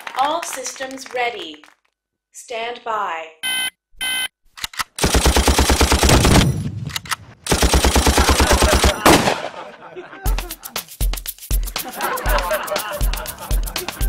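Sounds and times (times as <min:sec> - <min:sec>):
rapid machine-gun fire: 0:05.0 - 0:06.9, 0:07.5 - 0:09.6
music with steady bass beat: 0:10.3 - 0:14.0.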